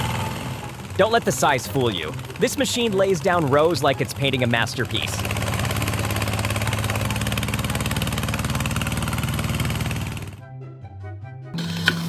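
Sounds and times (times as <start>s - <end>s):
quiet music: 0.0s - 9.0s
machine motor rattling: 0.0s - 10.4s, 11.6s - 12.0s.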